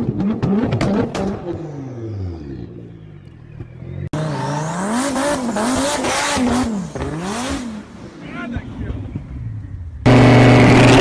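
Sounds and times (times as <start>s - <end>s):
sports car engine revving: 0.0s - 11.0s
exhaust crackle: 4.9s - 11.0s.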